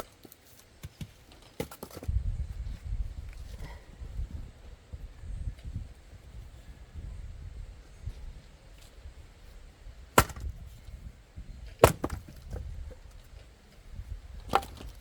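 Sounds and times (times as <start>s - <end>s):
axe chopping firewood: 10.1s - 10.8s, 11.8s - 12.6s, 14.5s - 15.0s
wood pieces knocking: 10.2s - 10.6s, 11.8s - 12.6s, 14.5s - 15.0s.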